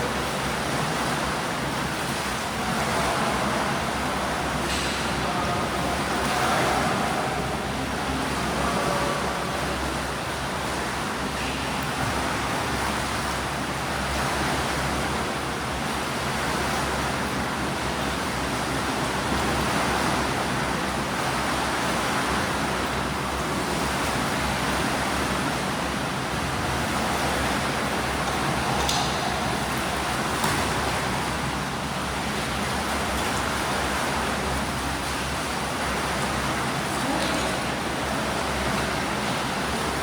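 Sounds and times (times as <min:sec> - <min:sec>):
swimmers splashing water: 0:00.0 - 0:40.0.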